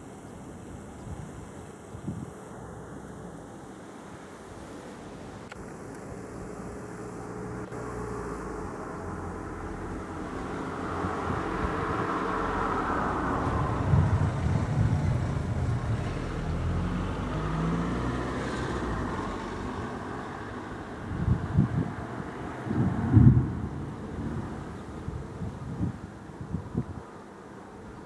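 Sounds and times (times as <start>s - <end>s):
thunder rumbling: 8.6s - 26.1s.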